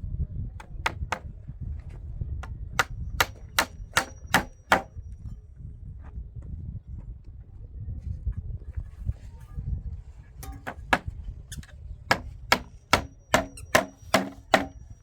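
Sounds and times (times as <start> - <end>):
hand tool striking wood: 0.8 - 1.3, 2.4 - 4.9, 10.4 - 11.1, 12.1 - 14.9.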